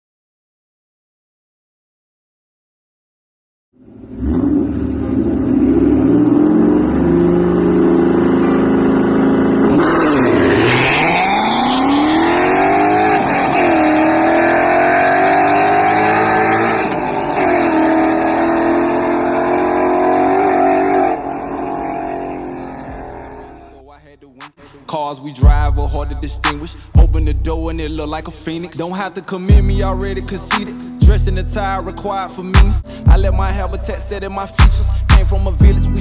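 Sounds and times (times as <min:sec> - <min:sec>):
car engine revving hard: 0:03.9 - 0:23.7.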